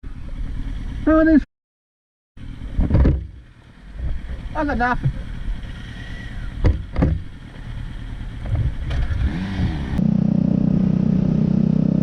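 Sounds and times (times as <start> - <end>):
motorcycle engine running: 0.1 - 1.4, 2.4 - 12.0
short knocks: 6.6 - 7.3.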